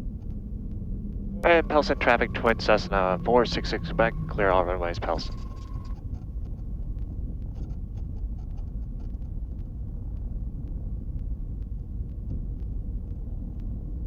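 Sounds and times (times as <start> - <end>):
aircraft engines rumbling: 0.0 - 8.4.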